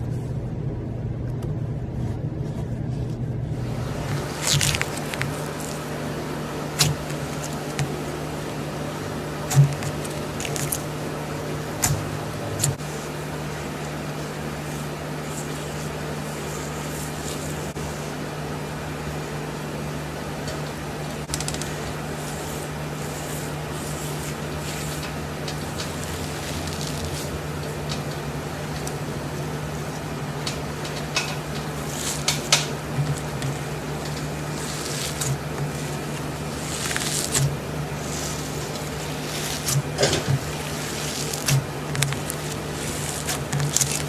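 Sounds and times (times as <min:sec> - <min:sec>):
steady low hum: 0:00.0 - 0:44.0
slime squished by hand: 0:03.6 - 0:12.9, 0:21.3 - 0:44.0
faint soft crackling: 0:21.6 - 0:44.0.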